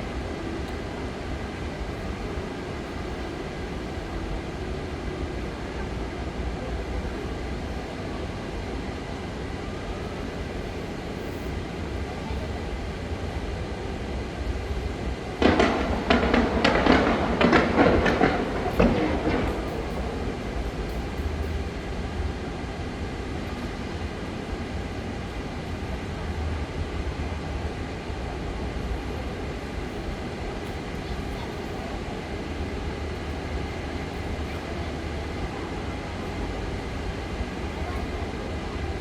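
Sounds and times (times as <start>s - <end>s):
fireworks bangs and crackles: 15.4s - 20.2s.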